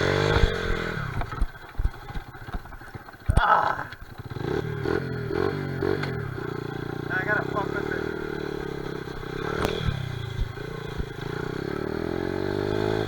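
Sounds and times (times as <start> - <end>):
small motorcycle engine revving: 0.0 - 13.0
knocks and clatter: 0.2 - 4.4.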